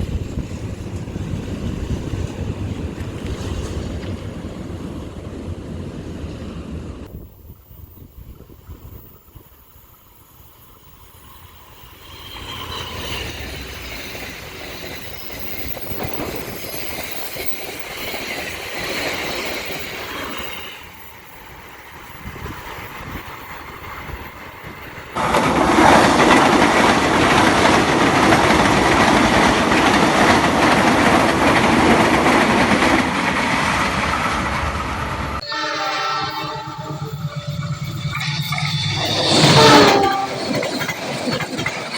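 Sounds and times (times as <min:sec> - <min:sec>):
train wheels rumbling on rails: 0:00.0 - 0:41.9
train horn: 0:35.4 - 0:40.7.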